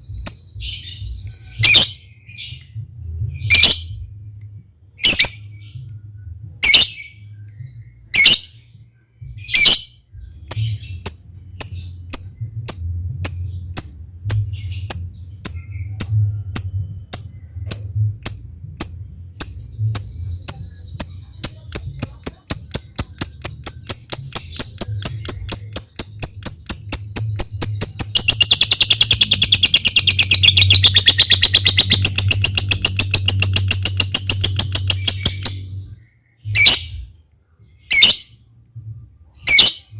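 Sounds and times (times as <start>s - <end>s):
low steady hum: 0.0s - 39.9s
lovebird chattering trill: 10.5s - 35.7s.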